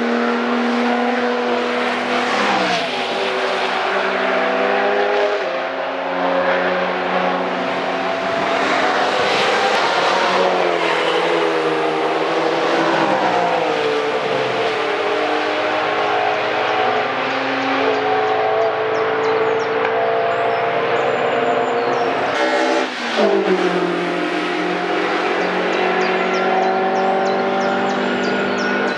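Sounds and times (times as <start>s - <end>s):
fast cars passing by: 0.0s - 28.9s.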